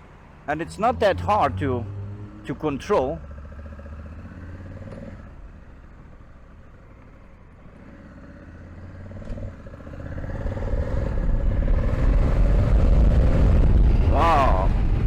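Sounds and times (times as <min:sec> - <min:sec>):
motorcycle engine accelerating: 0:01.0 - 0:15.0
wind rush on microphone: 0:10.2 - 0:15.0.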